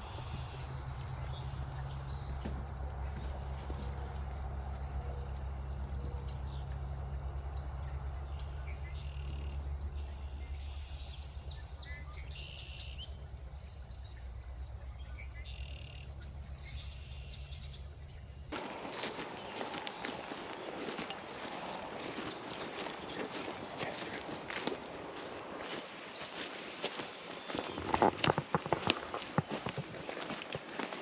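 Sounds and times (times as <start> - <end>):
steady low hum: 0.0 - 27.2.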